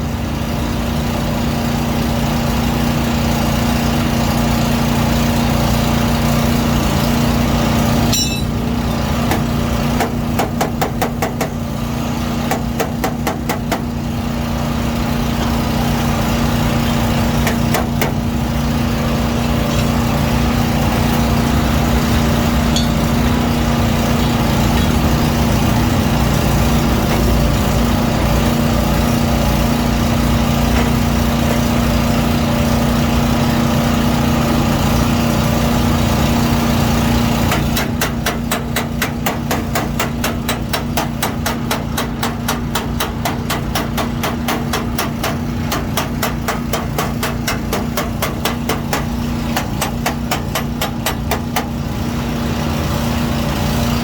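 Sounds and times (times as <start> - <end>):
hammer striking sheet metal: 8.1 - 8.6, 22.6 - 23.5
machine hum: 14.0 - 34.8.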